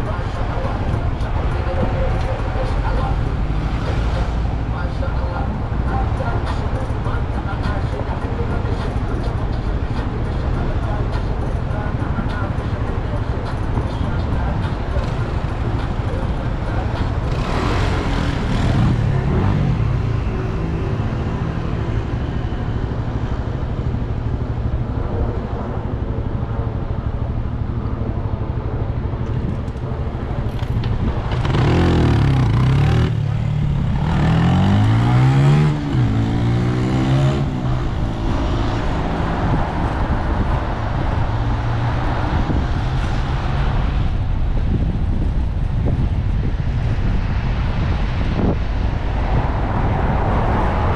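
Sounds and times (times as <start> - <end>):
city traffic: 0.0 - 50.9
road rumble: 0.0 - 50.9
wind: 0.0 - 50.9
vehicle accelerating past: 31.4 - 40.2.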